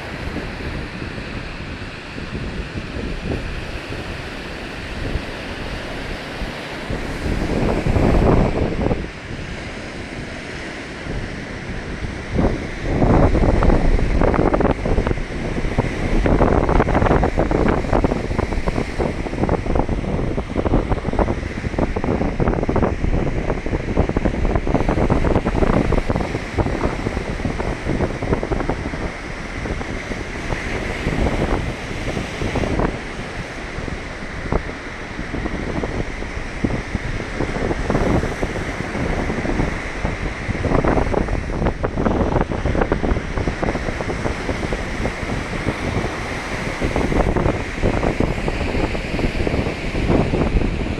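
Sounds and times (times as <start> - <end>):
surf washing onto shore: 0.0 - 50.9
wind buffeting microphone: 0.0 - 50.9.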